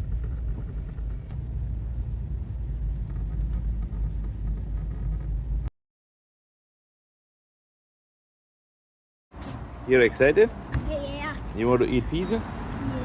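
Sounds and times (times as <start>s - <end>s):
car cabin road rumble: 0.0s - 5.7s, 9.4s - 13.0s.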